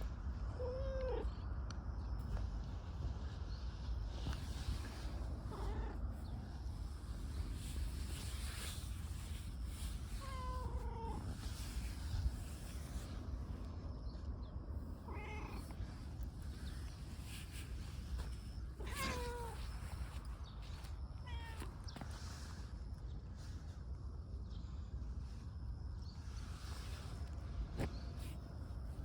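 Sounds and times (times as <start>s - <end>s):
cat meowing: 5.5s - 6.0s, 10.2s - 11.3s, 15.0s - 15.7s, 18.8s - 19.7s, 21.2s - 21.7s.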